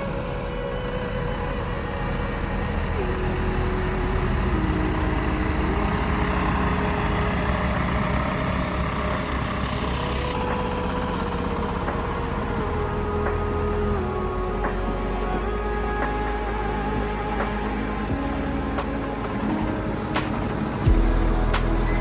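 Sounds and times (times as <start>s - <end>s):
diesel engine running: 0.0s - 22.0s
thin whine changing pitch: 0.0s - 22.0s.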